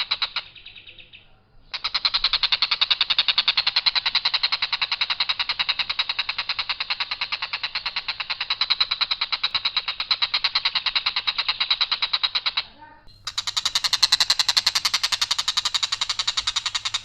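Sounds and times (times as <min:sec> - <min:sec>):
kingfisher harsh call: 0:11.0 - 0:17.0.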